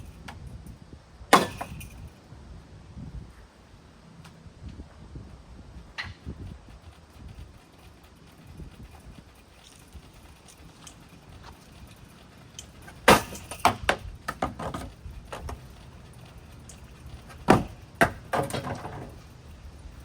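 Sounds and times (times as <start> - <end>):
hard blows on ceiling fan: 0.0 - 20.0
metal and plastic parts rattling: 6.0 - 20.0.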